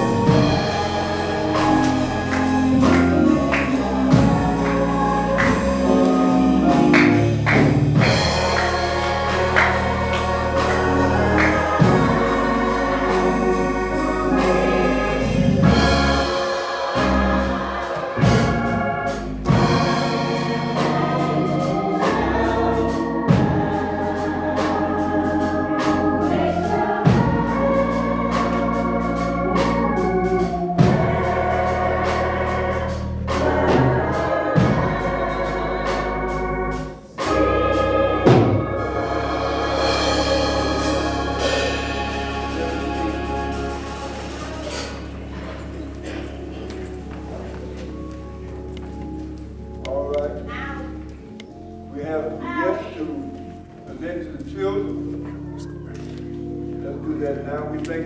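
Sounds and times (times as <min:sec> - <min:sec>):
drums: 0:00.0 - 0:36.3, 0:37.0 - 0:45.4
choir singing: 0:00.0 - 0:58.0
organ: 0:00.0 - 0:58.0.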